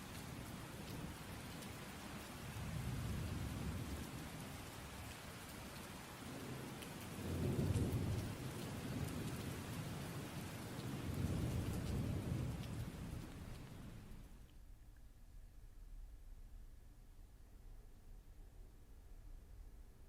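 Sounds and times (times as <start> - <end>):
steady rain: 0.0 - 14.7
low rolls of thunder: 2.5 - 5.2, 6.2 - 14.3.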